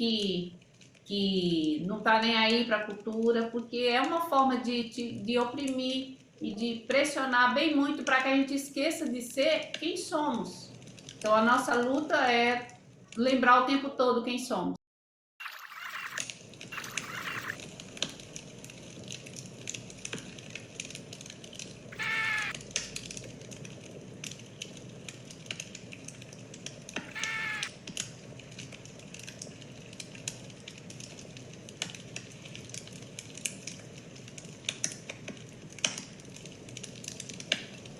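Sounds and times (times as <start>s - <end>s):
fire crackling and popping: 0.0s - 13.2s, 15.4s - 37.9s
short animal calls: 15.4s - 17.6s, 22.0s - 22.6s, 27.0s - 27.7s.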